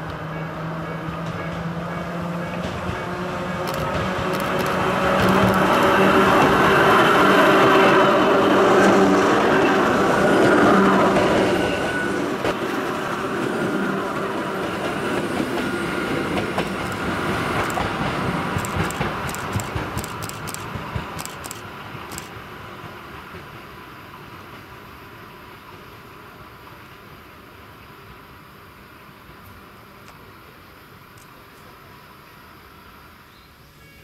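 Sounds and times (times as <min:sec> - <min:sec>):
electric train passing: 0:00.0 - 0:34.0
sharp wheel clicks on rails: 0:03.7 - 0:06.1, 0:16.8 - 0:22.3.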